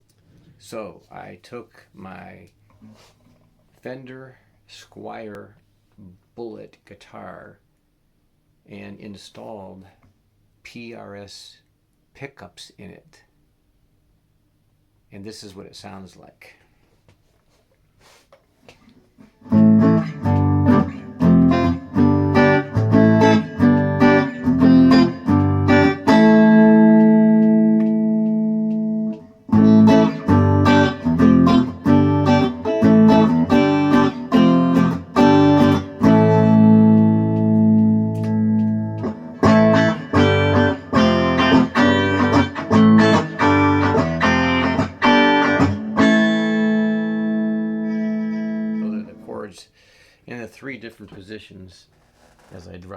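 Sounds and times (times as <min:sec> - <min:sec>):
electric guitar strumming chords: 0:19.4 - 0:49.4.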